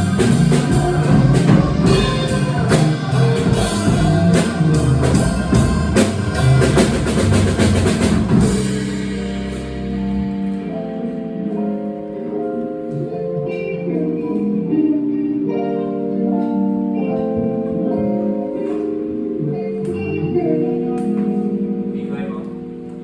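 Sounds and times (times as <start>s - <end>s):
jazz drum kit: 0.0s - 11.6s
bass: 0.0s - 12.0s, 19.3s - 22.4s.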